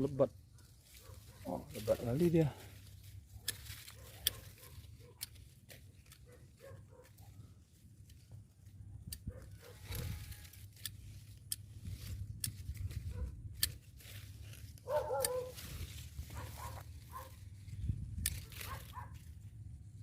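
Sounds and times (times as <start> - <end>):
leaves rustling: 0.0 - 7.8, 9.6 - 19.7
pruning shears snipping: 1.6 - 6.8, 8.0 - 19.4
wind rumble on microphone: 8.9 - 10.5, 11.6 - 13.8, 14.9 - 20.0.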